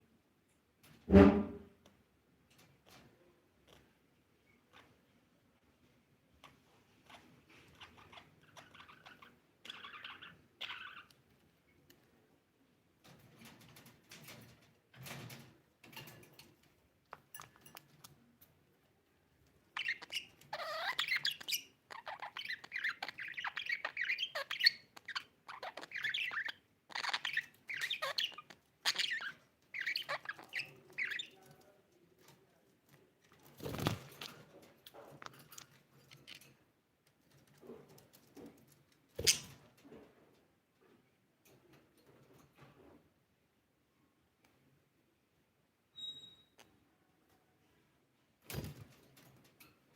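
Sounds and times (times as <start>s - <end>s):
budgerigars chirping and warbling: 7.0s - 11.1s, 19.8s - 31.4s.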